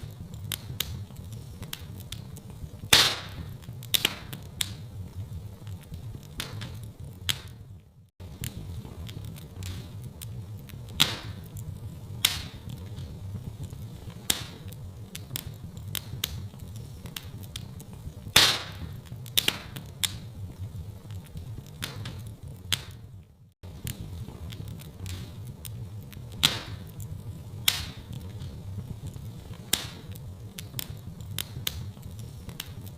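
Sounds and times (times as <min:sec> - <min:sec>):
wood fire crackling and popping: 0:00.0 - 0:32.9.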